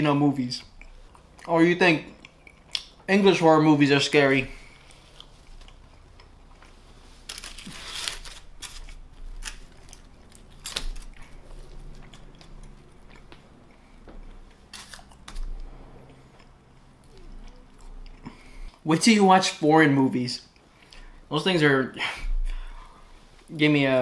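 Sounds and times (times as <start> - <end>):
person chewing food: 0.6 - 3.1, 4.5 - 18.8.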